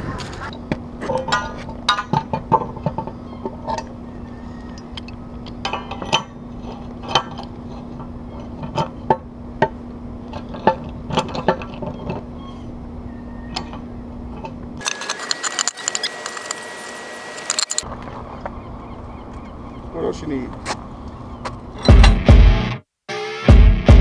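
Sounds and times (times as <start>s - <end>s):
metal hardware clinking: 4.8s - 7.8s, 14.4s - 16.6s, 17.4s - 17.9s.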